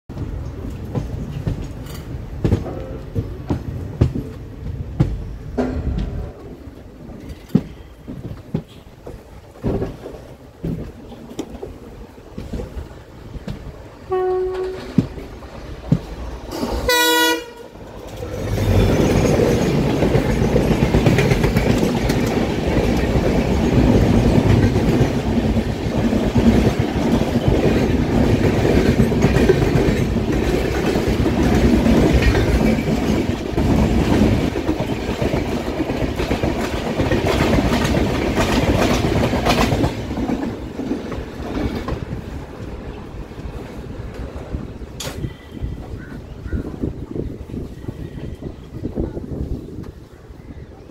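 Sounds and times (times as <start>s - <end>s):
train wheels rumbling and clattering: 0.1s - 50.9s
locomotive horn: 14.0s - 15.0s, 16.8s - 17.8s.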